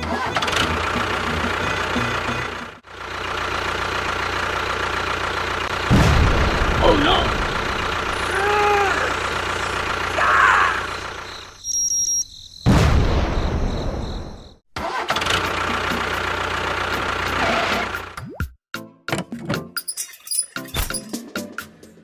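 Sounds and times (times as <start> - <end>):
engine running steadily: 0.0 - 11.5, 15.0 - 18.2
loud noisy burst: 5.9 - 11.0.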